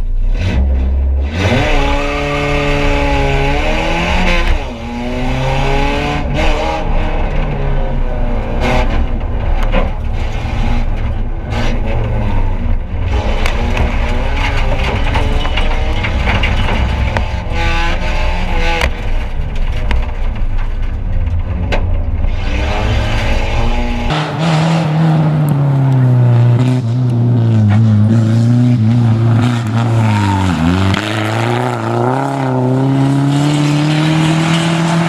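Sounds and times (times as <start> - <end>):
rally car engine accelerating: 0.0 - 35.0
road noise: 0.0 - 35.0
knocks and rattles on gravel: 13.0 - 22.2.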